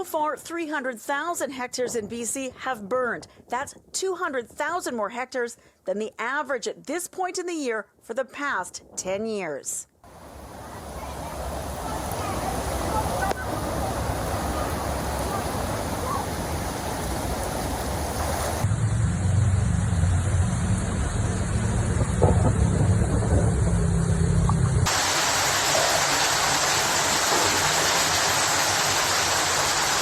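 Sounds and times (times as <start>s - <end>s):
rush of water: 10.1s - 18.7s, 24.8s - 30.0s
heavy low rumble: 10.1s - 24.9s
hiss: 24.9s - 30.0s.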